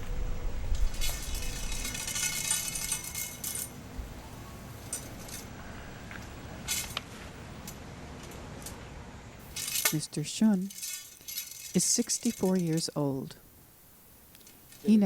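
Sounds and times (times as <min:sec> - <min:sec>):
metallic jingling and clinking: 0:00.9 - 0:03.8, 0:09.5 - 0:13.1.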